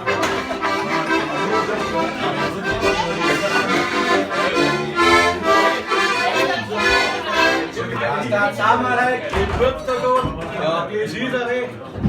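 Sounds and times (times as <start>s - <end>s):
accordion playing chords: 0.0s - 8.2s.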